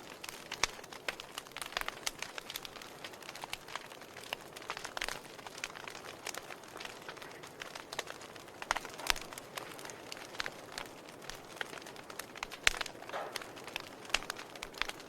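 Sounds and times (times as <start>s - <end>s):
logs crackling: 0.0s - 15.0s
sharp pops of fire: 0.0s - 15.0s
soft steady hiss: 0.0s - 15.0s.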